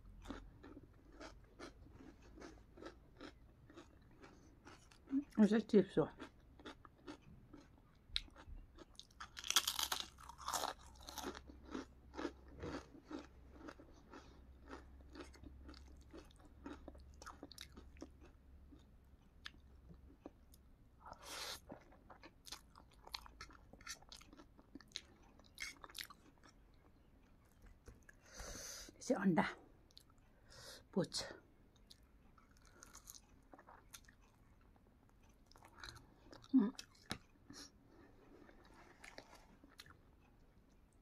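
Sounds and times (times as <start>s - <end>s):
person chewing noodles: 0.0s - 5.4s, 6.2s - 28.8s, 31.8s - 41.0s
crunching potato chip: 8.2s - 18.2s.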